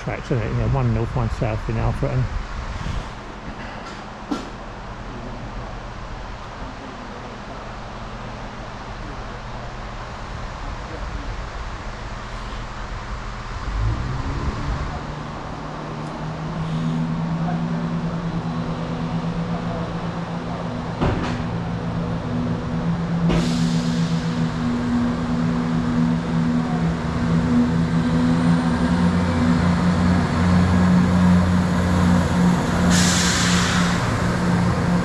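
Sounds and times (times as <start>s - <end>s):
diesel train engines droning: 0.0s - 35.0s
hissing air burst: 23.2s - 25.3s, 32.7s - 35.0s.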